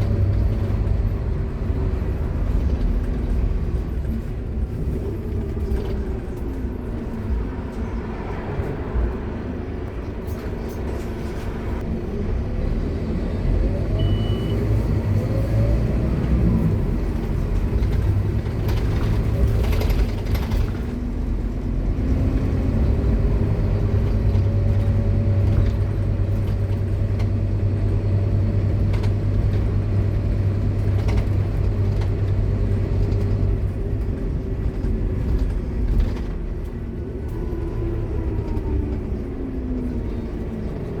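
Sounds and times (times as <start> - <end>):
bus engine droning: 0.0 - 41.0.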